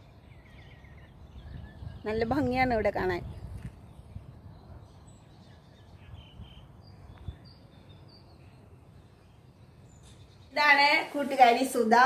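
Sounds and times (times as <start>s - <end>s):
high bird chirps: 3.8s - 10.6s.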